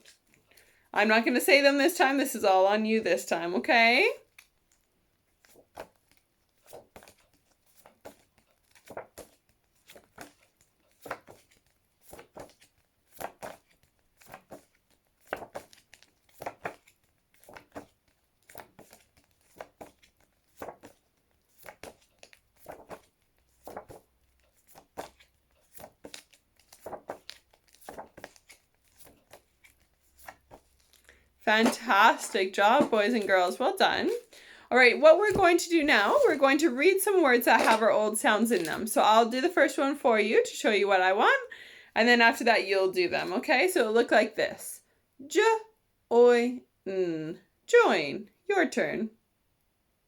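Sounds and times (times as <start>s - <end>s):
paper flashcards flipping: 0.0s - 0.7s, 4.3s - 34.3s, 35.0s - 39.1s.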